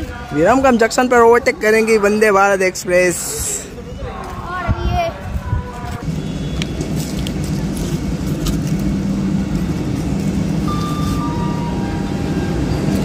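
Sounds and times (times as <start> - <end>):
train wheels rumbling on rail: 5.4 - 13.0
brief high tone: 10.6 - 13.0.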